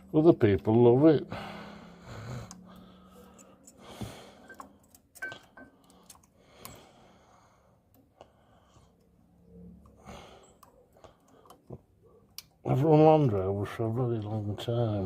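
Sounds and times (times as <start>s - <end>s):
small metal parts clicking: 4.4s - 6.8s.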